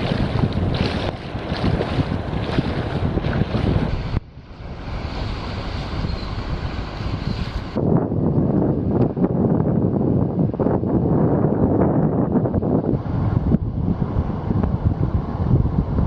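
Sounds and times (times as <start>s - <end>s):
water splashing around boat: 0.0s - 7.8s
wind buffeting microphone: 0.0s - 16.0s.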